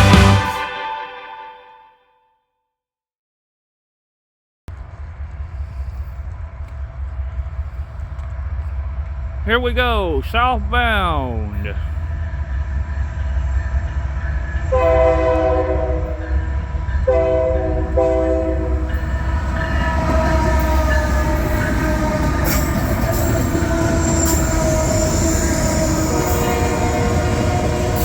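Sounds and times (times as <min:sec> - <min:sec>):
freight train passing: 0:04.8 - 0:28.0
locomotive air horn blasts: 0:14.8 - 0:16.2, 0:17.1 - 0:18.8.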